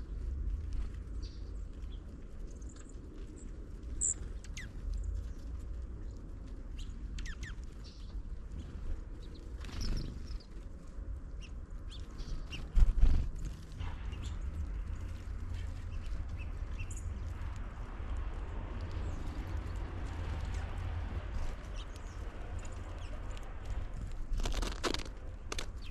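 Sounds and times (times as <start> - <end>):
wind rumble on microphone: 0.0 - 25.9
finches chirping: 6.8 - 8.1, 9.2 - 10.5.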